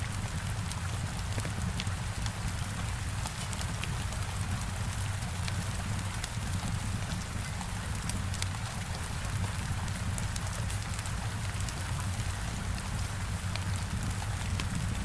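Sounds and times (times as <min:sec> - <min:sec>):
heavy rain: 0:00.0 - 0:15.0
wood fire crackling and popping: 0:04.9 - 0:12.2.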